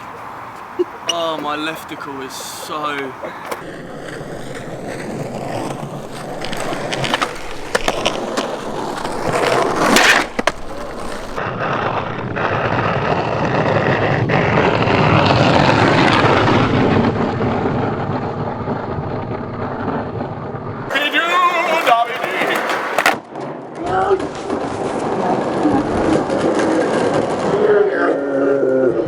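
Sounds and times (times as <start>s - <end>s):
skateboard wheels rolling on pavement: 0.0s - 28.9s
skateboard clacks: 2.8s - 11.4s, 20.9s - 23.2s, 23.8s - 27.9s
loud skateboard crack: 2.8s - 18.0s, 20.9s - 27.9s.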